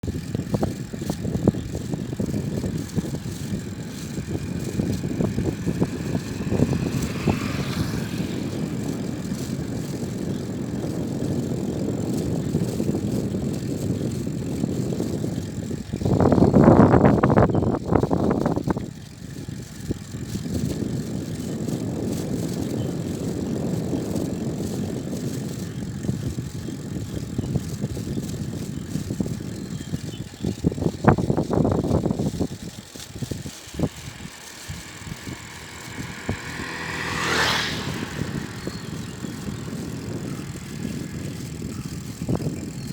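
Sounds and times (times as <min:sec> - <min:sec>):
wind rushing while cycling: 0:00.0 - 0:42.9.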